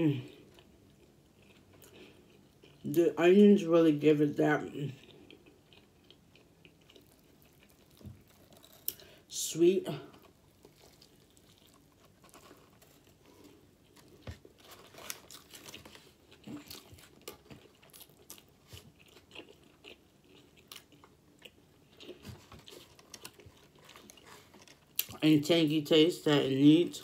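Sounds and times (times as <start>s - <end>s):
faint mouth clicks chewing: 5.0s - 9.1s.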